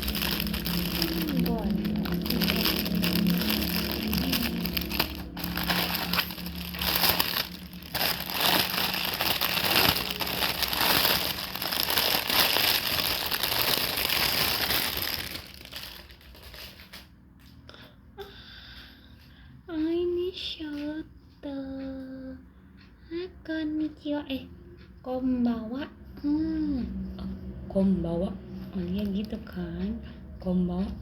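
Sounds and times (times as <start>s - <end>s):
gift wrapping crinkling: 0.0s - 17.1s.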